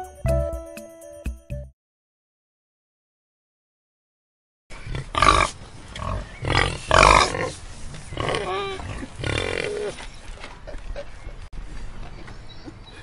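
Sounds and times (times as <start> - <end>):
pigs grunting: 4.8 - 10.1.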